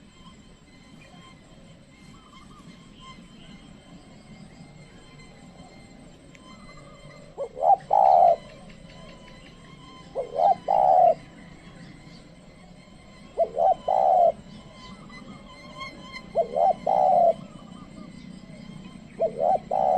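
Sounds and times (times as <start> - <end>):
dove cooing: 4.8 - 19.9.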